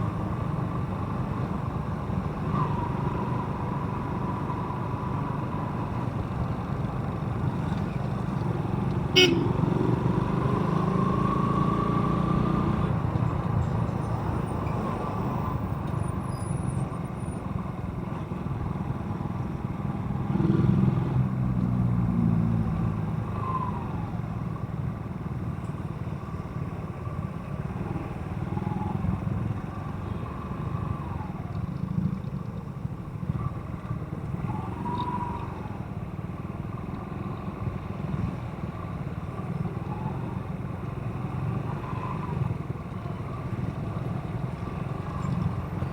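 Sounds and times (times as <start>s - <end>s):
road noise: 0.0s - 45.9s.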